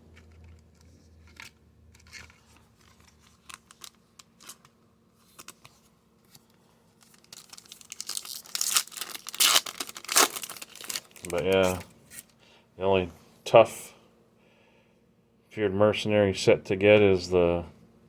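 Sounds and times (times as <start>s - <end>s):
foil wrapper crinkling and tearing: 0.5s - 5.6s, 7.0s - 12.3s.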